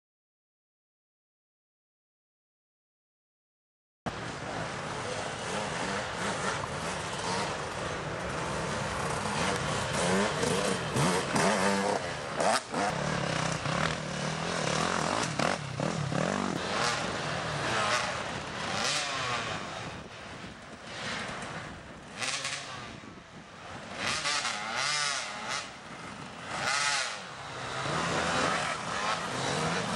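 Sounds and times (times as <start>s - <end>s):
dirt bike engines revving: 4.1s - 29.9s.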